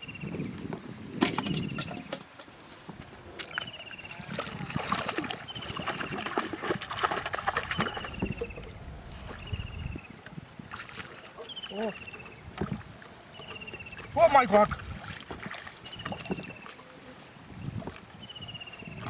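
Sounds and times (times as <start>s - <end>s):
water splashing: 1.2s - 19.0s
bird chirping: 7.8s - 8.6s.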